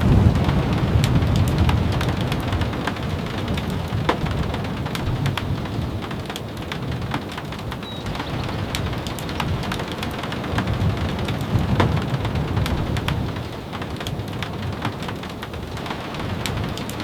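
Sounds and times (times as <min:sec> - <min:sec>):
low rumble of thunder: 0:00.0 - 0:17.0
steady rain falling: 0:00.0 - 0:17.0.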